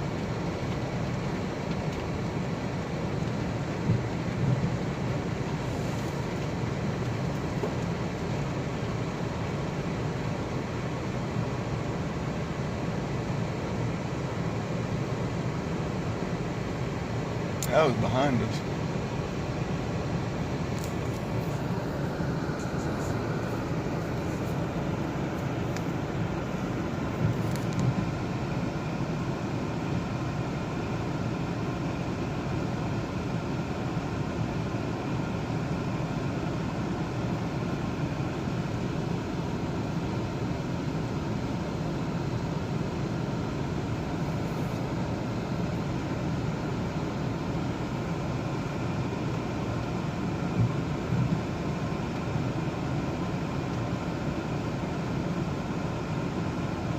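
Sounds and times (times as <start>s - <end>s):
road and engine noise in car: 0.0s - 56.9s.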